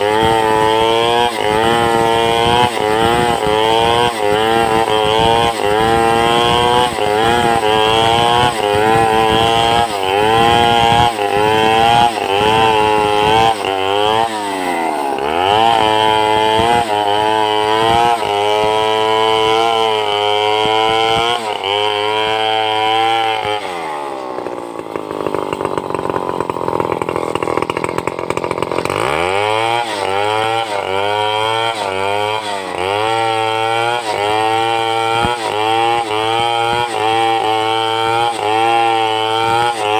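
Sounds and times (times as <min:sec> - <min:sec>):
chainsaw cutting a log: 0:00.0 - 0:39.9.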